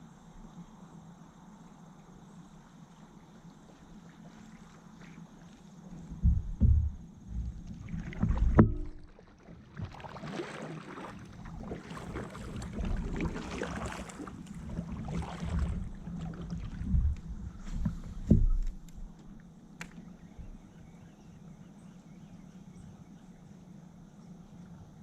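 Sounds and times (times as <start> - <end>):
paddle splashing water: 2.9 - 20.6
knocks against kayak hull: 6.1 - 9.2, 16.8 - 19.0.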